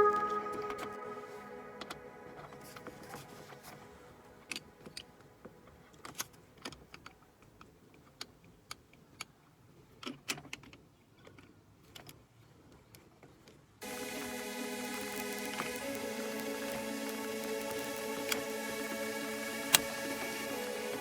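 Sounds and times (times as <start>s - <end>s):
music: 0.0s - 4.5s, 13.8s - 21.0s.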